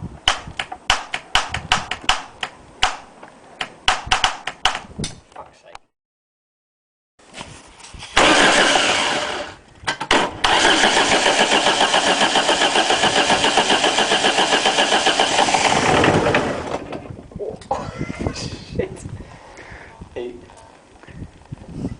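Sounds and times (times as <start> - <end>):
diesel engine cranking: 8.2 - 17.2.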